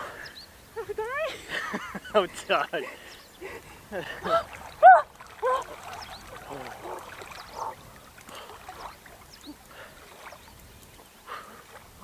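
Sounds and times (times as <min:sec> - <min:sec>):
water splashing and lapping: 0:00.0 - 0:12.0.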